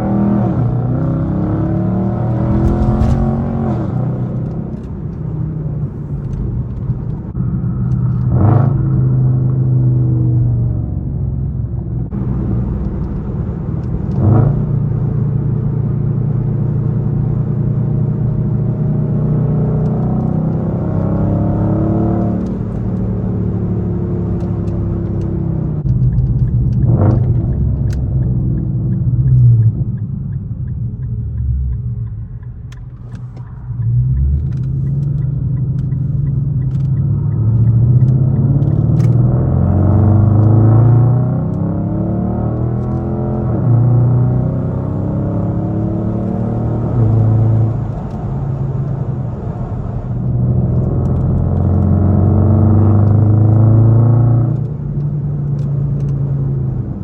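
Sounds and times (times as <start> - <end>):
car exhaust rumble: 0.0 - 57.0
exhaust cracks: 1.7 - 9.0.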